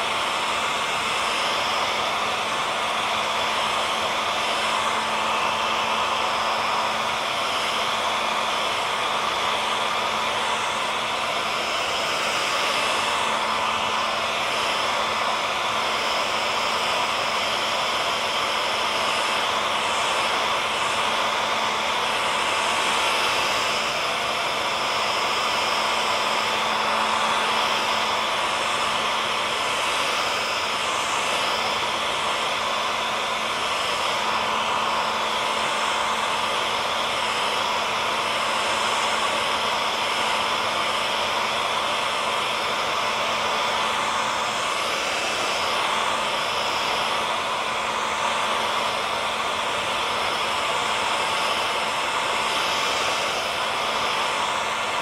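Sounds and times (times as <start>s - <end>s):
faint motor whine: 0.0s - 55.0s
hair dryer blowing air: 0.0s - 55.0s.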